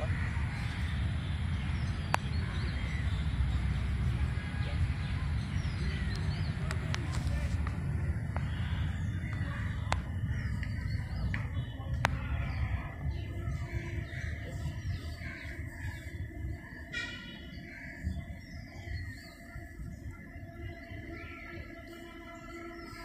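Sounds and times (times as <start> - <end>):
steady low rumble: 0.0 - 16.9
birds chirping: 0.0 - 23.0.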